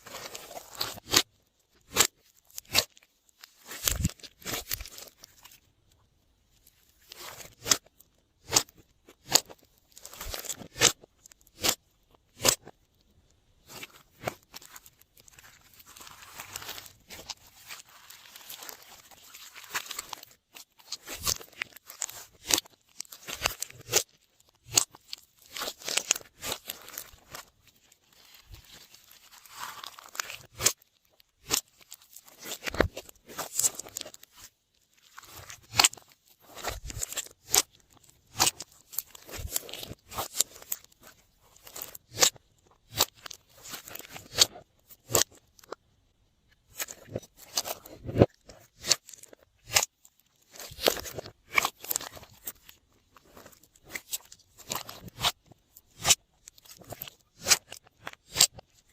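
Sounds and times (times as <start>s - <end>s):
slime soft crackling: 13.6s - 42.2s.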